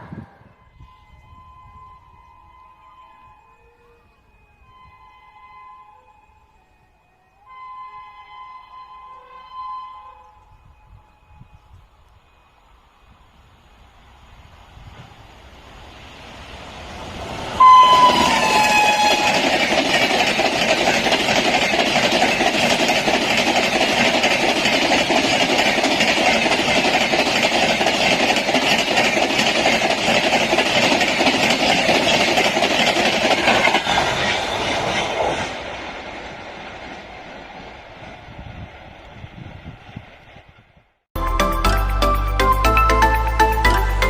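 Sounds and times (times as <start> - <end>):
locomotive horn blast: 0.0 - 6.8, 7.4 - 11.7, 17.6 - 19.7
train coaches rushing by: 13.8 - 44.0
wheels clacking on rail joints: 17.5 - 38.2.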